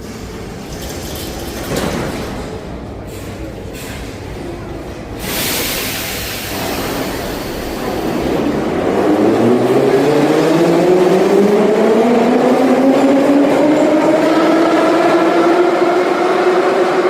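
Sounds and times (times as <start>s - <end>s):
train air hiss: 5.2s - 8.4s.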